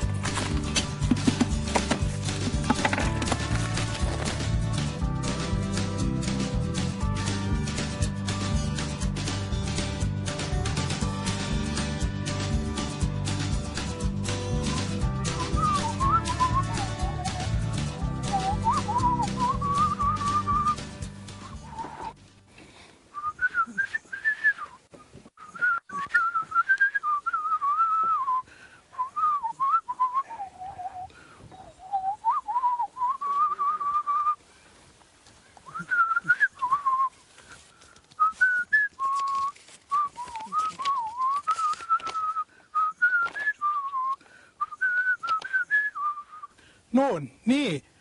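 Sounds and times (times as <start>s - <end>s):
person whistling a tune: 14.6s - 21.0s, 23.2s - 24.8s, 25.4s - 31.0s, 31.8s - 34.4s, 35.7s - 37.1s, 38.2s - 46.5s.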